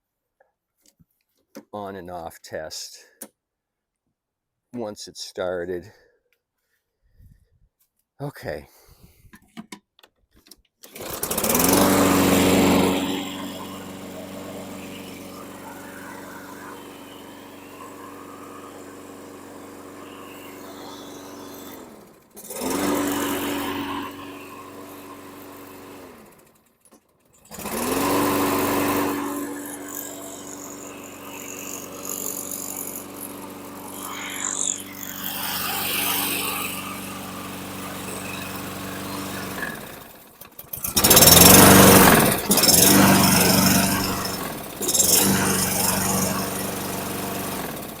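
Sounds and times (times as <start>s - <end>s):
lawn mower engine starting and running: 10.8s - 48.0s.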